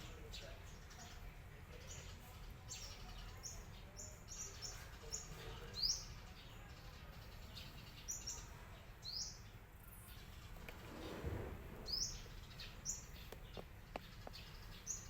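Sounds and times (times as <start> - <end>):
rustling: 10.4 - 13.7
high bird chirps: 11.8 - 15.0.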